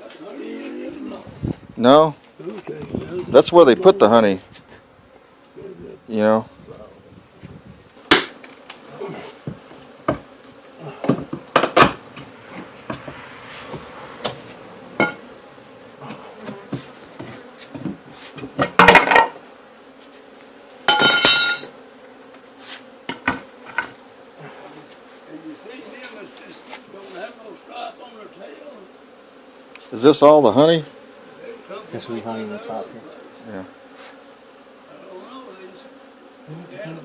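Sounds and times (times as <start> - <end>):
honeybees buzzing: 0.0 - 37.0
knocks and clicks on hive: 8.0 - 14.4, 16.1 - 19.4, 23.0 - 24.0.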